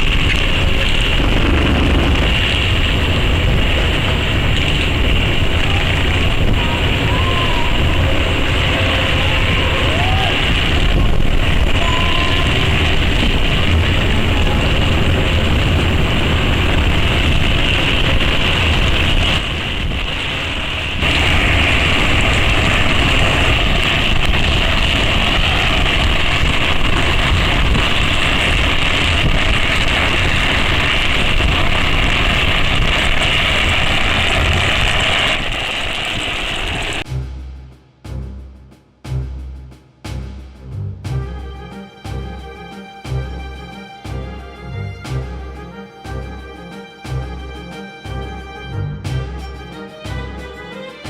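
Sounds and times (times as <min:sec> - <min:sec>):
wind on microphone: 0:00.0 - 0:37.1
road noise: 0:00.0 - 0:37.3
low rumble: 0:00.0 - 0:50.9.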